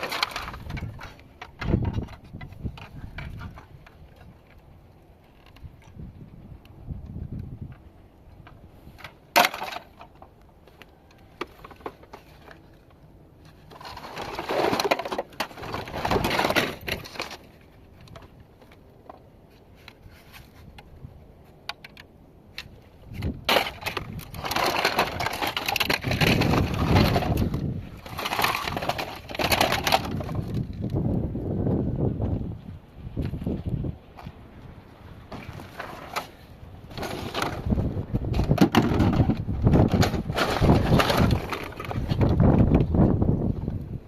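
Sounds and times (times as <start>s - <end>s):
device cracking and crunching: 22.6s - 30.9s.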